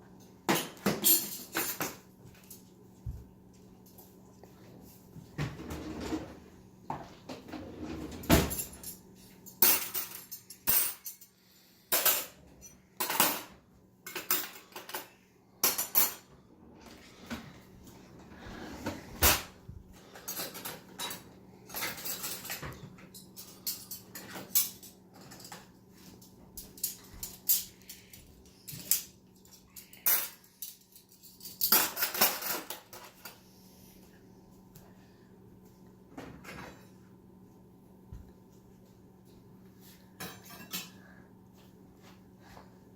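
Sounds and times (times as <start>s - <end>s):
dishes and cutlery clinking: 0.4s - 2.6s, 8.3s - 16.4s, 20.0s - 33.4s, 40.2s - 41.0s.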